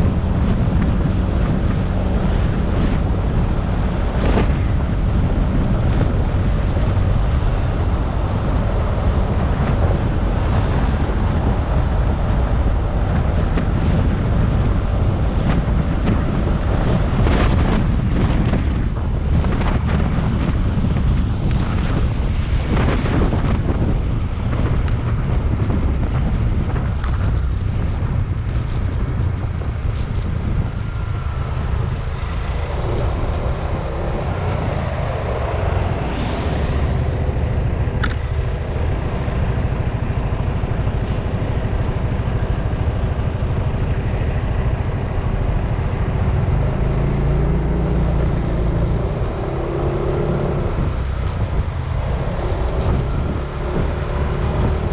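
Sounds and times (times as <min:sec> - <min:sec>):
engine and traffic noise: 0:00.0 - 0:54.9
wind rumble on microphone: 0:00.0 - 0:54.9
brief hiss: 0:36.1 - 0:37.3
sharp click: 0:38.0 - 0:38.3.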